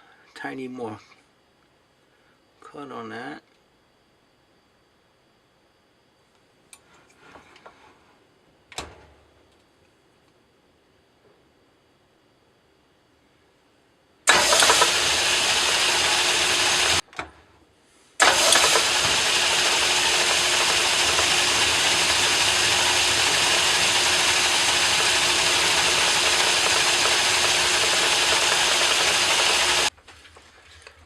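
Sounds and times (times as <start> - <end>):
metal lathe running: 14.3 - 17.0, 18.2 - 29.9.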